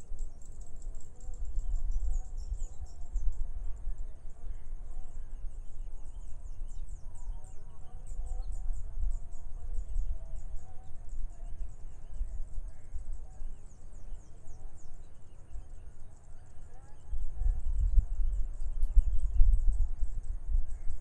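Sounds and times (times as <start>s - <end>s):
wind on microphone: 0.0s - 16.0s, 16.6s - 21.0s
faint wavering bird calls: 0.2s - 21.0s.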